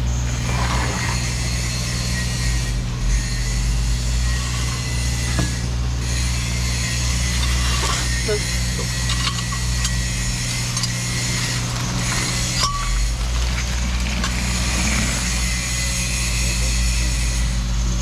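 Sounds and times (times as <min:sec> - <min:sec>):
engine running steadily: 0:00.0 - 0:18.0
light metallic clinks: 0:07.1 - 0:13.1.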